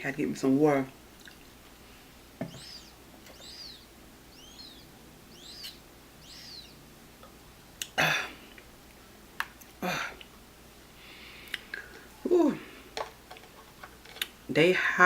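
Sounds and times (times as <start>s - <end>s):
bird chirping: 2.4s - 6.9s.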